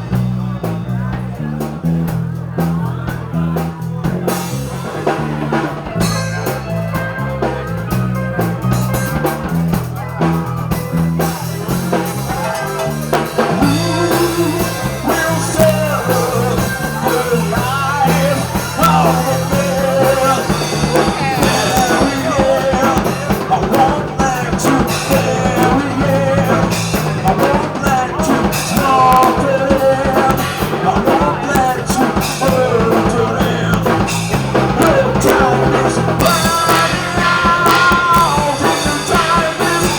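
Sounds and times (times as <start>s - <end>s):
bass riff: 0.0s - 39.9s
drums: 0.0s - 39.9s
person singing: 12.1s - 39.9s.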